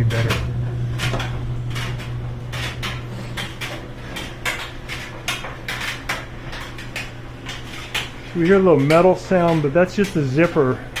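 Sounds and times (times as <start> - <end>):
dryer motor and drum humming: 0.0 - 11.0.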